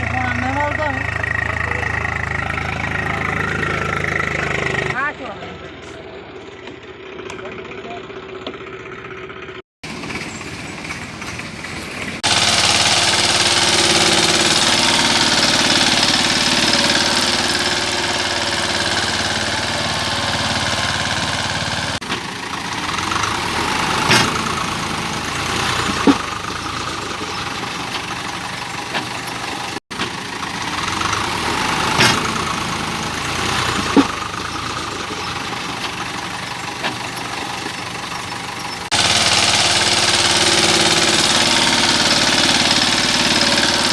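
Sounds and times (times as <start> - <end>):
engine running: 0.0 - 43.9.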